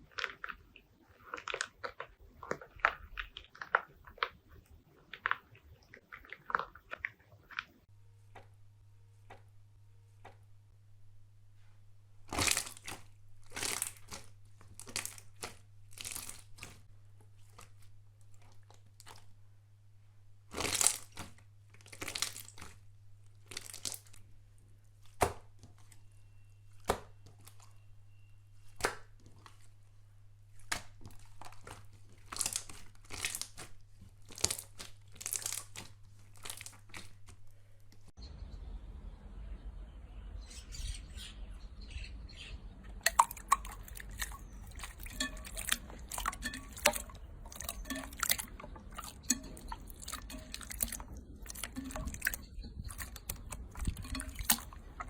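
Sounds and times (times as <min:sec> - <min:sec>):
slime crackling when squeezed: 0:30.6 - 0:37.4.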